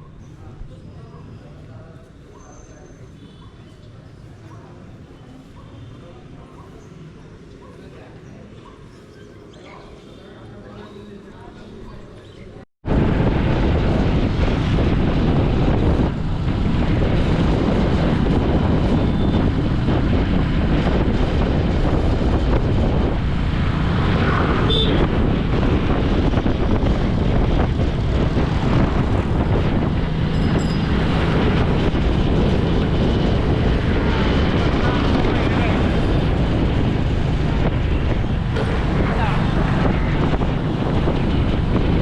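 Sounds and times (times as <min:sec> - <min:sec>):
wind buffeting microphone: 0:12.8 - 0:42.0
vehicle rumble: 0:12.9 - 0:42.0.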